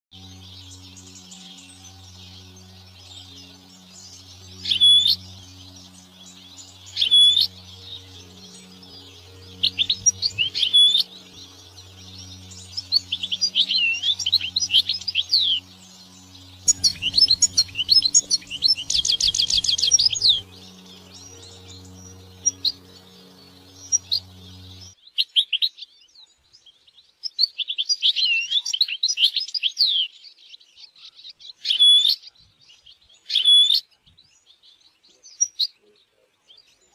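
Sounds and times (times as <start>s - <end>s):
goldfinch singing: 0.2s - 25.0s
low pulsing drone: 0.2s - 25.0s.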